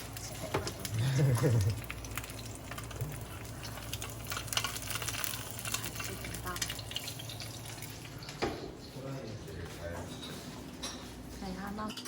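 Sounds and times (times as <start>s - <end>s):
food sizzling in a pan: 0.0s - 8.4s.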